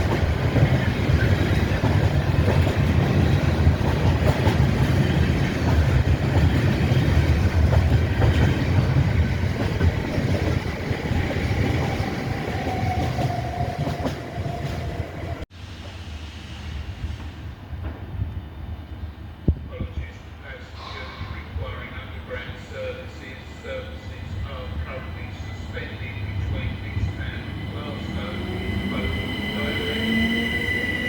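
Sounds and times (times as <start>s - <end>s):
train wheels rumbling and clicking: 0.0s - 16.0s, 17.0s - 20.0s.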